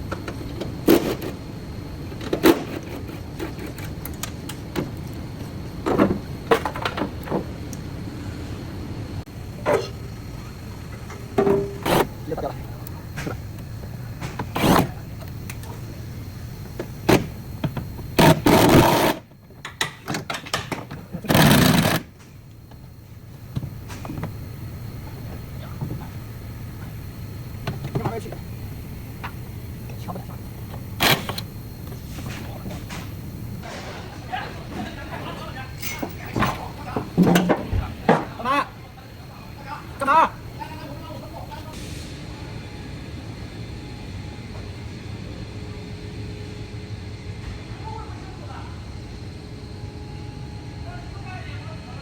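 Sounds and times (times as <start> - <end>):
low background noise: 4.1 - 44.4.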